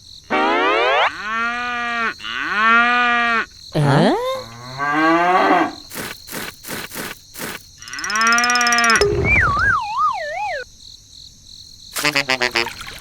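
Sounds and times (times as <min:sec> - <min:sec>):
rising pitched cartoon call: 0:00.3 - 0:01.2, 0:07.8 - 0:10.6
downward sliding wavering tone: 0:07.9 - 0:10.6.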